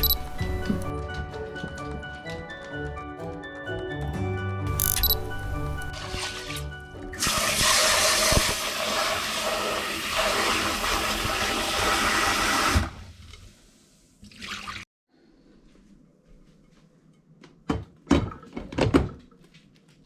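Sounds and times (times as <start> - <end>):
water running hard: 7.2 - 12.9.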